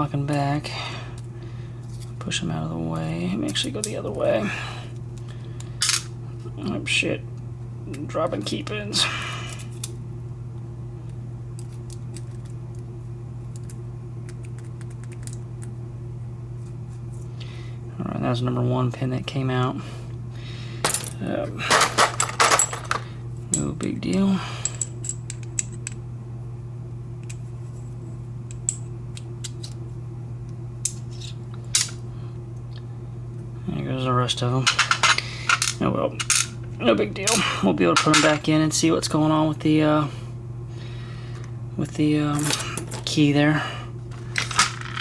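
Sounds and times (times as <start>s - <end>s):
steady low hum: 0.0s - 45.0s
key pins dropping: 20.8s - 23.7s.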